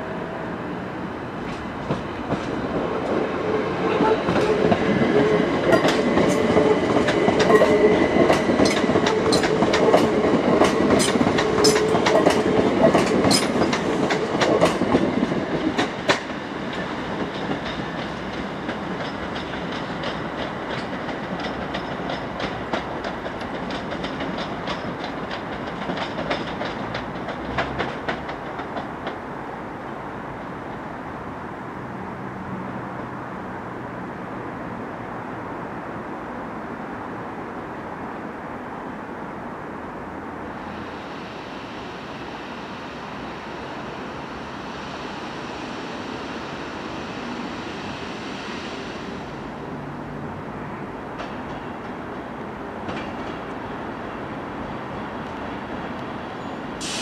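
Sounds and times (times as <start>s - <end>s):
train rumble: 0.0s - 57.0s
train wheels clicking over rail joints: 3.8s - 29.3s, 51.1s - 53.8s.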